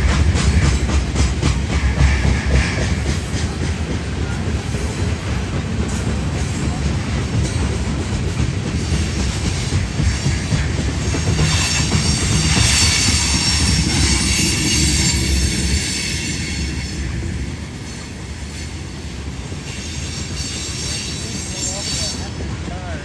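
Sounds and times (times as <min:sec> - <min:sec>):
train wheels rumbling on rail: 0:00.0 - 0:23.0
high wheel squeal: 0:11.3 - 0:22.5.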